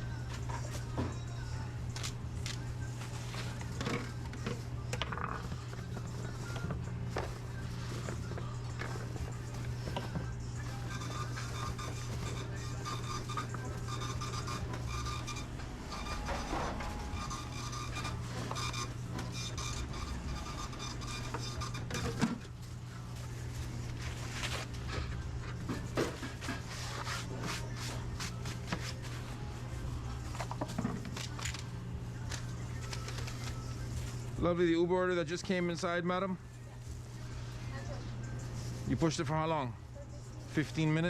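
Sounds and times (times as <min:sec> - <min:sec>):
low machine hum: 0:00.0 - 0:41.0
utensils and trays clattering: 0:03.3 - 0:22.5.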